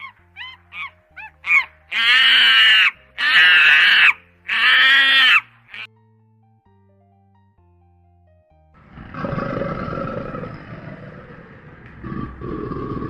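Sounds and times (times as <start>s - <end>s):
animal harsh cries: 0.0s - 5.9s.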